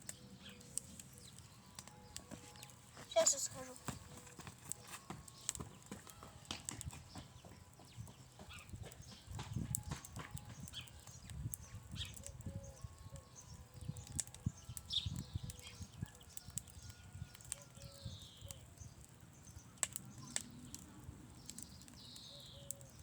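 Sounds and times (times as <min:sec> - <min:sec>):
footsteps on ground: 0:02.2 - 0:10.6.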